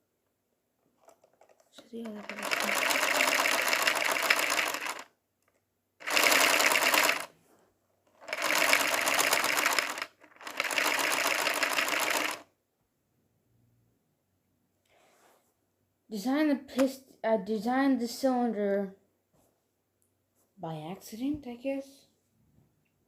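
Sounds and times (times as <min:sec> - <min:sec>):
plastic engine clattering: 0:01.0 - 0:05.1, 0:06.0 - 0:07.3, 0:08.1 - 0:12.4.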